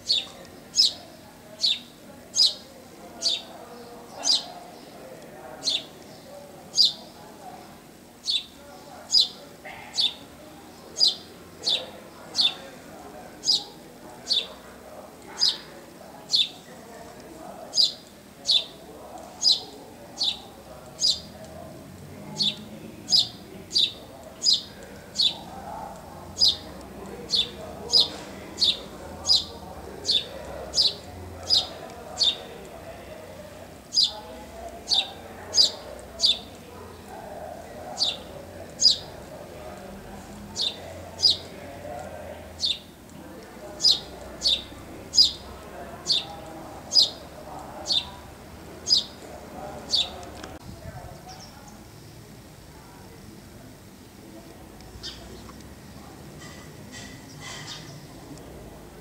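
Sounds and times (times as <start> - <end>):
bird chirping: 0.0 - 5.0, 5.6 - 7.2, 8.2 - 14.6, 15.3 - 16.7, 17.7 - 21.4, 22.3 - 32.7, 33.8 - 39.2, 40.5 - 41.6, 42.3 - 43.0, 43.7 - 50.3, 54.9 - 55.6.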